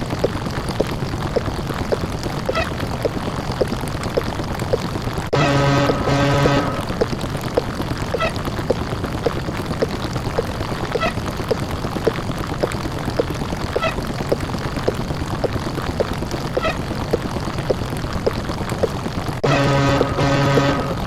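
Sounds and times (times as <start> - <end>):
distorted buzzing drone: 5.4 - 7.0, 19.4 - 21.0
short blips: 8.1 - 8.4.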